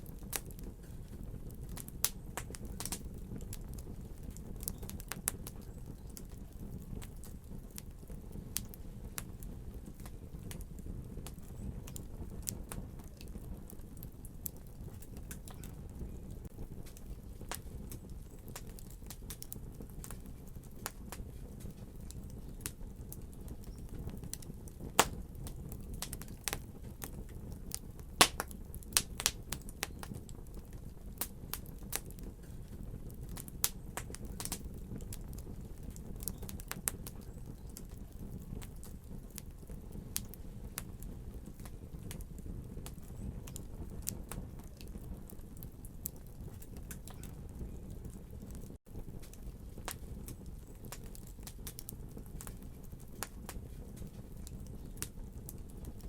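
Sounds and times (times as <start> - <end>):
fire sharp pops: 0.0 - 56.0
wood fire crackling: 0.0 - 56.0.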